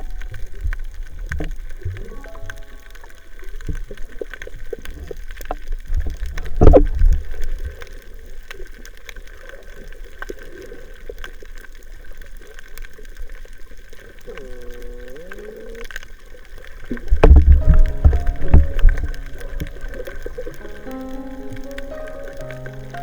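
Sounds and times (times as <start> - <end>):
underwater clicks and crackles: 0.0 - 23.0
bubbling water rush: 15.8 - 23.0.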